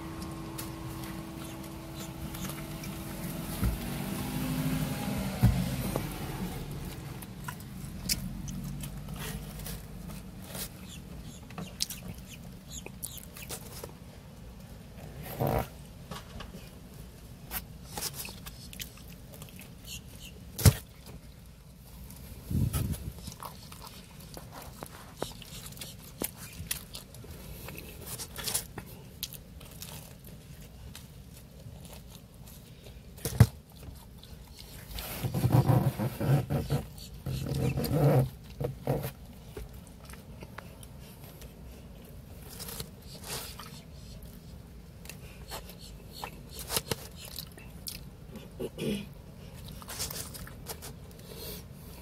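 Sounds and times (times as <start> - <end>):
low hum: 0.0 - 10.4
person chewing pizza: 17.5 - 21.4, 22.8 - 35.1, 36.5 - 52.0.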